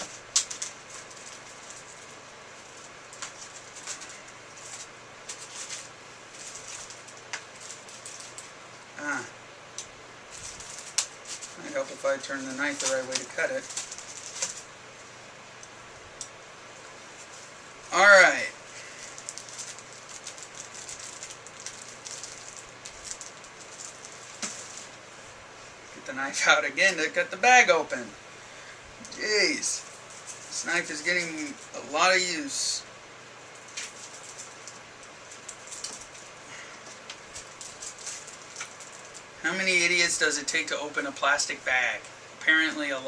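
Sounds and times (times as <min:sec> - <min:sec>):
packaging rustles and scrapes: 0:00.0 - 0:08.5, 0:10.3 - 0:14.7, 0:18.7 - 0:25.0, 0:29.8 - 0:31.7, 0:33.6 - 0:39.3.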